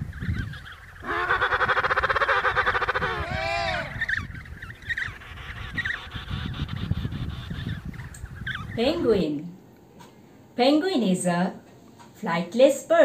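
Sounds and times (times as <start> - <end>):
rising and falling bird call: 0.0 - 9.0
bird honking call: 0.1 - 8.8
small high bird chirps: 3.7 - 8.8.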